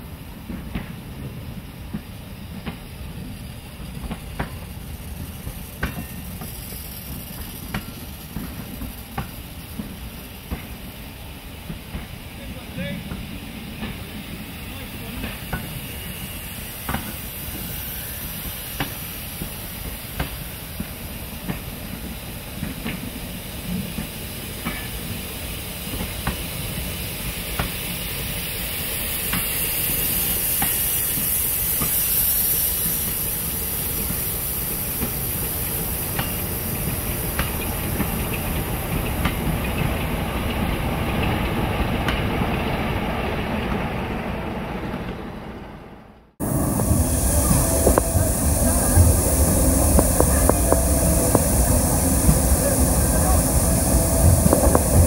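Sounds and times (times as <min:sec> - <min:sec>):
train rumble and hiss: 0:00.0 - 0:55.0
wheels clicking over rail joints: 0:01.9 - 0:10.9.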